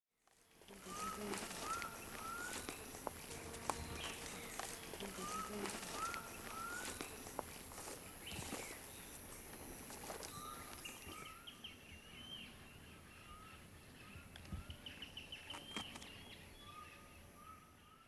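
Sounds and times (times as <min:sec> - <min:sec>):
birds whistling: 0:00.9 - 0:03.0, 0:03.8 - 0:09.2.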